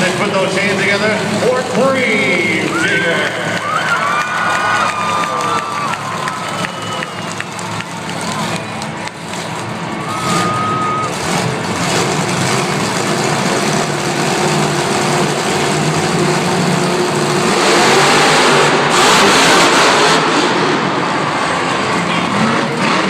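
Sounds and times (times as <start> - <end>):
monster truck engines revving: 0.0 - 23.0
whistle-like tone: 10.0 - 11.2.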